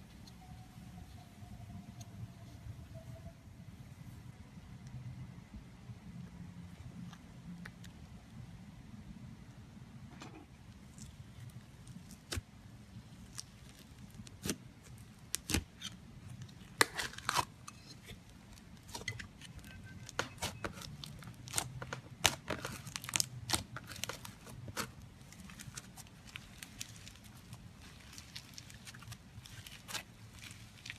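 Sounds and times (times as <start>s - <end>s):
slime squishing with clicks and pops: 10.7s - 30.9s.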